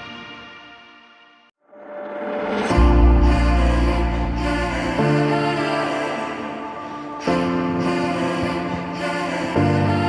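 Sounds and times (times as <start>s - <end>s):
background music chords: 2.4s - 10.0s.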